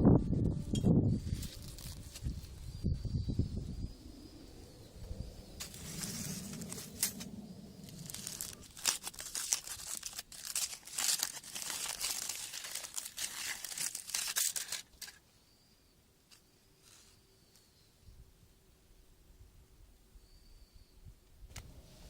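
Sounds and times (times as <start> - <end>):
foil crinkling and tearing: 1.3 - 2.4, 5.6 - 7.2, 7.8 - 15.2.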